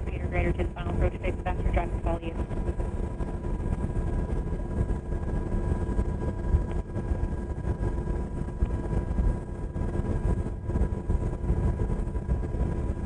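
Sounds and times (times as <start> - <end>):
helicopter rotor and engine drone: 0.0 - 13.0.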